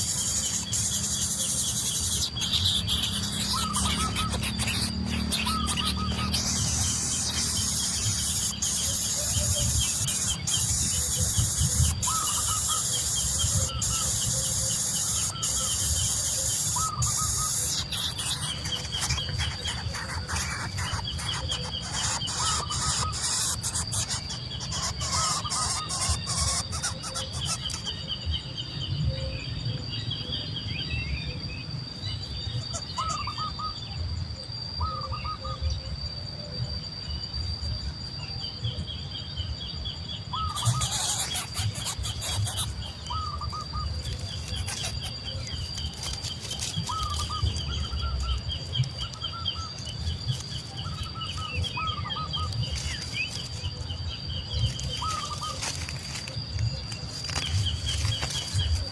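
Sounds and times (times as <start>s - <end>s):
high-pitched whine: 0.0s - 27.7s
birds chirping: 0.0s - 29.2s, 31.2s - 34.2s, 38.4s - 58.9s.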